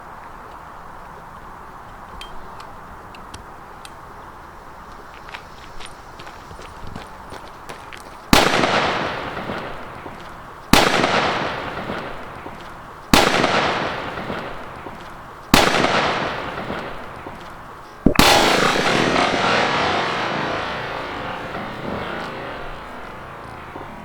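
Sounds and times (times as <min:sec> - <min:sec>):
loud explosive bangs echoing: 0:08.4 - 0:10.1, 0:10.8 - 0:12.4, 0:13.2 - 0:14.9, 0:15.6 - 0:17.4, 0:18.1 - 0:24.0.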